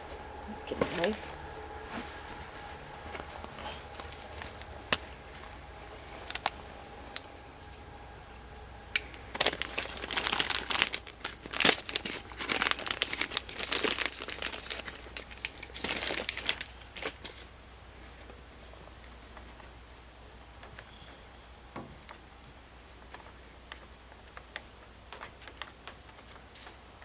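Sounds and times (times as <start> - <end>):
plastic packaging crinkling and tearing: 1.8 - 7.8, 8.8 - 18.4.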